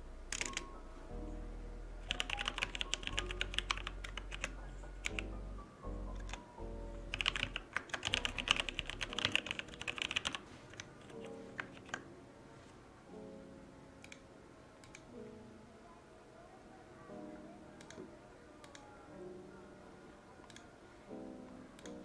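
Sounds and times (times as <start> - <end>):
typing on computer keyboard: 0.3 - 0.7, 2.0 - 5.2, 6.2 - 6.4, 7.1 - 12.0.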